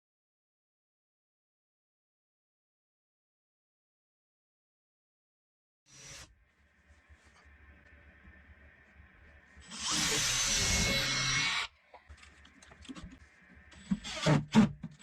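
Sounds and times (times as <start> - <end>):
power drill whining and driving: 5.9 - 6.3, 9.4 - 15.0.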